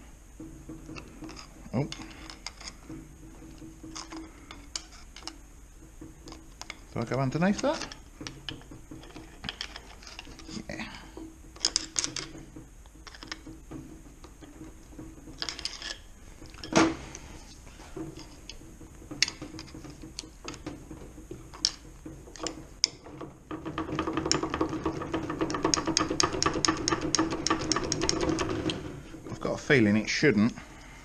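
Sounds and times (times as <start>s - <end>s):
tools and metal parts clinking: 0.8s - 5.4s, 6.2s - 17.2s
fast metallic ticking rattle: 18.5s - 30.0s.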